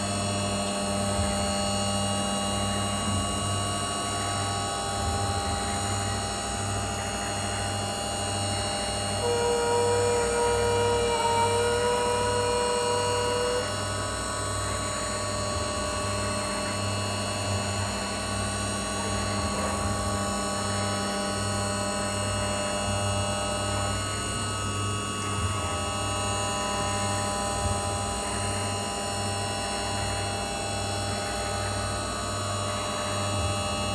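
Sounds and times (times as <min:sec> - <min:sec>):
pulsing low hum: 0:00.0 - 0:24.0
milling machine whine: 0:00.0 - 0:24.1.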